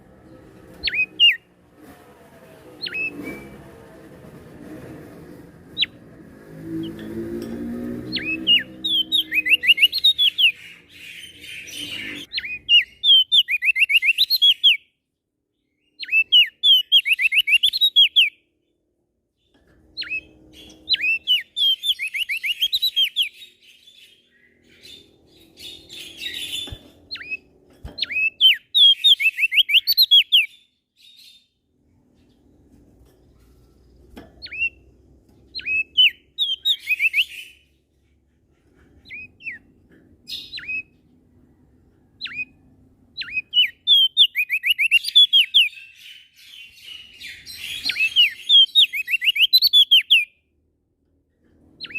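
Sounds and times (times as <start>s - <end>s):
songbird singing: 0.0s - 1.6s, 2.8s - 3.7s, 5.7s - 37.9s, 38.9s - 50.5s, 51.7s - 51.9s
faint low hum: 0.0s - 7.6s.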